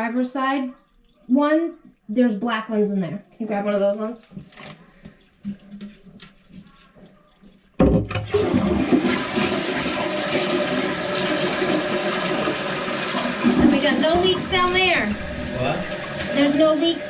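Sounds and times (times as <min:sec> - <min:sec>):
toilet flushing: 0:08.0 - 0:17.0.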